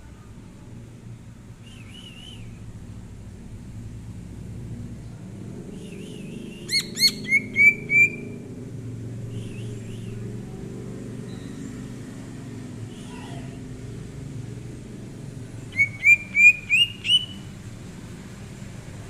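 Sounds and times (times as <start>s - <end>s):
steady low rumble: 0.0s - 11.1s
bird whistling upward: 1.6s - 2.6s, 6.0s - 8.3s, 15.7s - 17.5s
faint bird calls: 5.8s - 8.4s, 12.9s - 13.6s, 15.7s - 17.5s.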